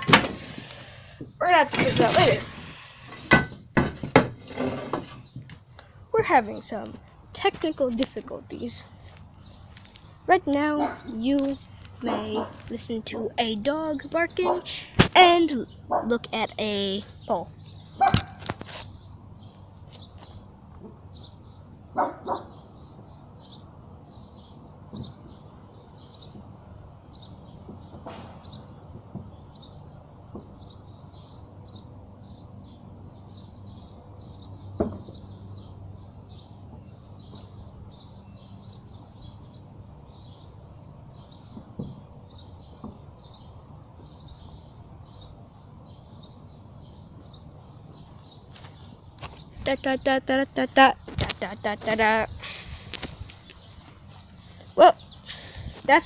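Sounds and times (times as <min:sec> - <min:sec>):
small birds chirping: 0:00.0 - 0:56.0
dog barking: 0:10.8 - 0:11.1, 0:12.0 - 0:12.6, 0:14.4 - 0:14.7, 0:22.0 - 0:22.6.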